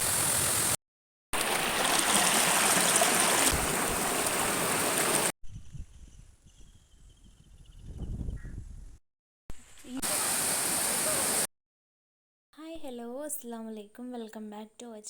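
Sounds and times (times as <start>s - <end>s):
waterfall rushing: 0.0s - 0.8s, 1.4s - 5.3s, 10.0s - 11.5s.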